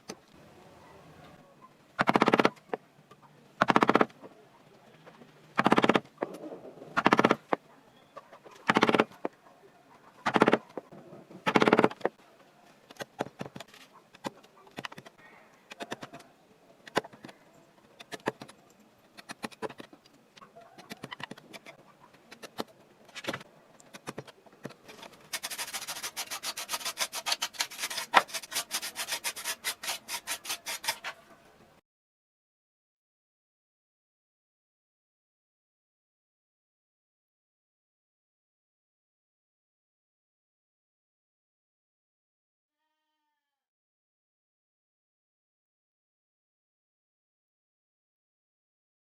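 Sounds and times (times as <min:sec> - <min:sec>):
sandpaper rubbing on wood: 0:25.0 - 0:31.2.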